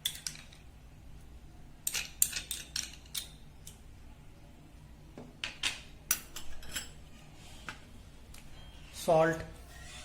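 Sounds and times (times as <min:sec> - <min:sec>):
spoon scraping a bowl: 0:09.6 - 0:10.0.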